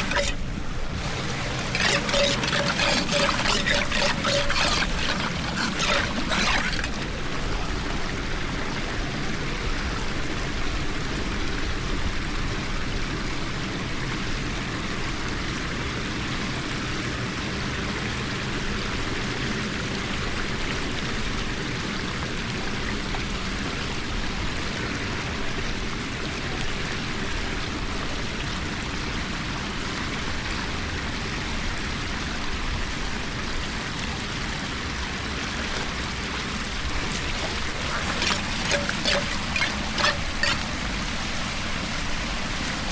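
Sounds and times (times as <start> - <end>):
floodwater rushing down drain: 0.0 - 10.5, 34.8 - 42.9.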